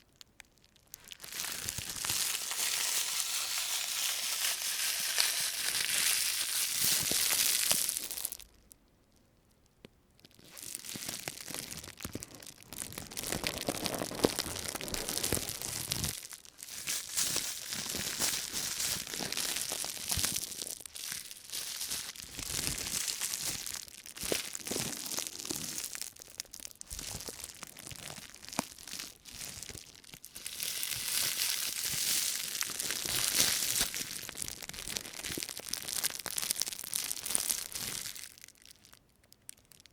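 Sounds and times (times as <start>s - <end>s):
plastic bag crinkling: 0.6s - 8.6s, 10.2s - 39.9s.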